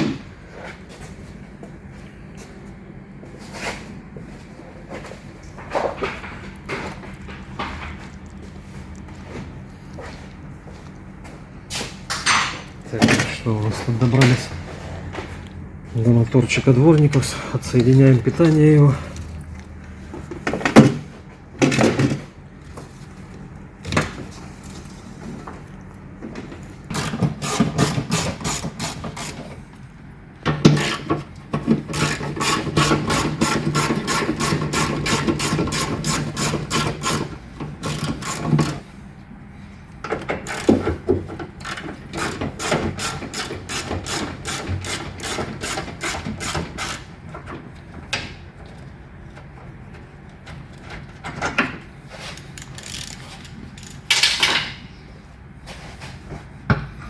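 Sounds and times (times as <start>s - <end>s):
ratchet wrench clicking: 26.9s - 29.3s, 40.4s - 40.7s, 41.6s - 47.0s, 52.4s - 54.6s.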